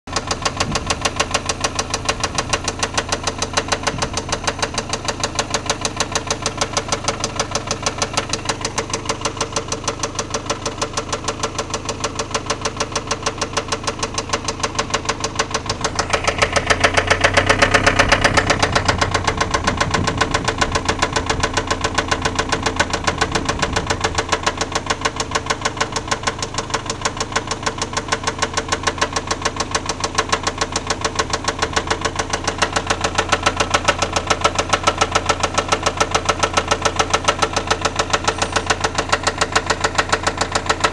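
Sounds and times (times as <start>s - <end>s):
car engine idling: 0.1s - 40.9s
engine ticking: 0.1s - 40.9s
car engine revving: 15.7s - 24.5s, 37.3s - 40.9s.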